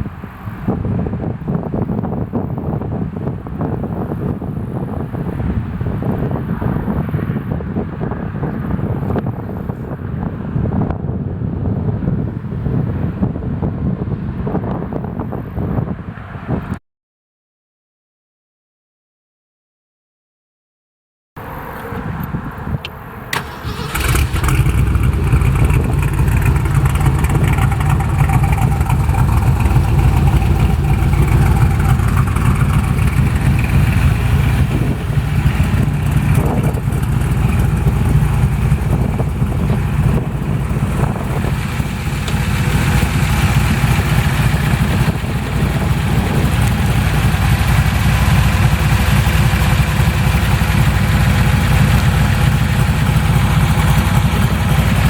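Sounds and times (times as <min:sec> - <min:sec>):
engine running with low rumble: 0:21.4 - 0:55.0
engine cranking and starting: 0:23.3 - 0:45.2.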